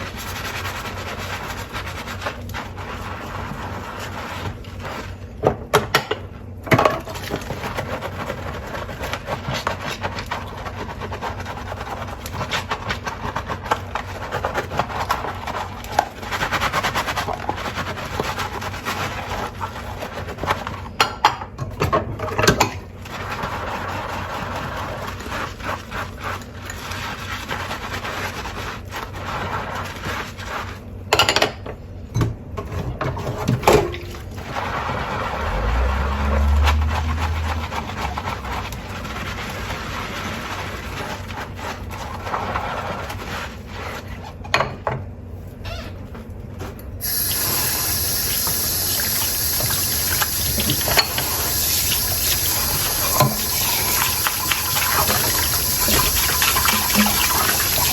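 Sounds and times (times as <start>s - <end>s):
running tap water: 47.0s - 57.9s.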